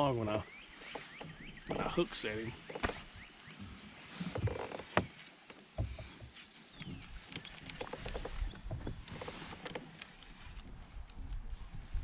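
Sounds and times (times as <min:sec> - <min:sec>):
wind rumble on microphone: 0:06.8 - 0:09.5, 0:10.3 - 0:12.0.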